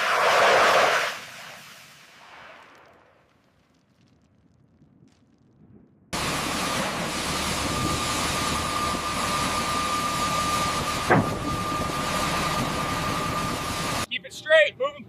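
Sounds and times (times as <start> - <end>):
turbine engine roaring: 0.0 - 2.2, 6.2 - 14.1.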